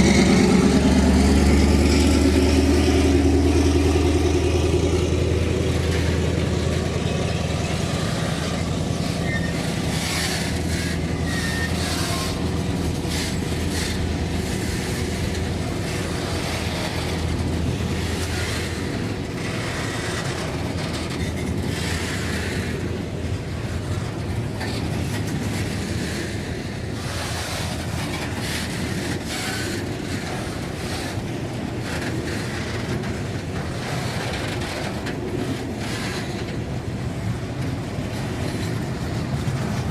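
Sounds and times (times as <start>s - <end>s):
diesel locomotive engine drone: 0.0s - 39.9s
freight wagons rail clatter: 0.0s - 39.9s.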